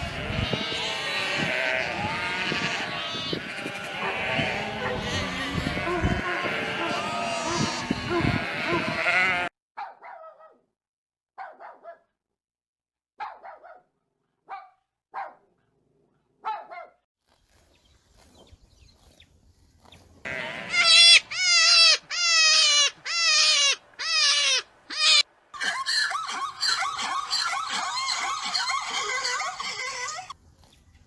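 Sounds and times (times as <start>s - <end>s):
mixed animal noise: 0.0s - 9.5s, 19.8s - 30.8s
animal high-pitched calls: 20.3s - 30.4s.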